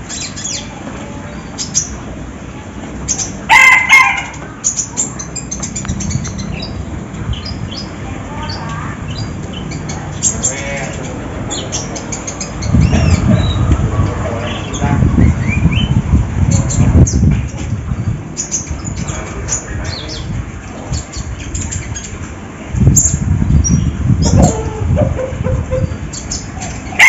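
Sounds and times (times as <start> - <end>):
low rumbling noise: 0.0 - 27.0
bird chirping rapidly: 3.1 - 13.7, 14.5 - 17.3.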